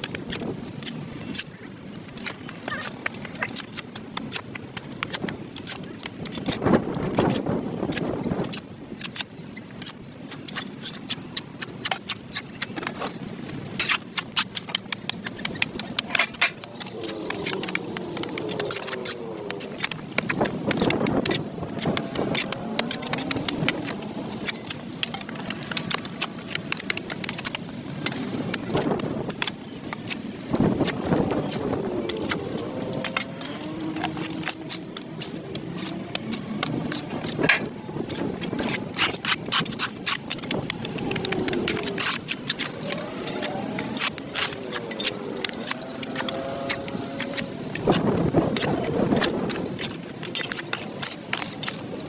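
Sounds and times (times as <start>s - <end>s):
tools scraping on sidewalk: 0.0s - 52.0s
passing motor vehicle: 15.5s - 26.8s, 27.6s - 39.6s, 40.2s - 51.6s.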